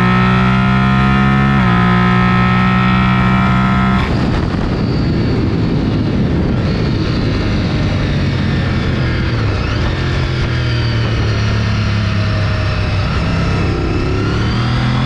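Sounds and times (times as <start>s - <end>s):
motorcycle engine at speed: 0.0s - 15.0s
wind rushing: 11.4s - 15.0s.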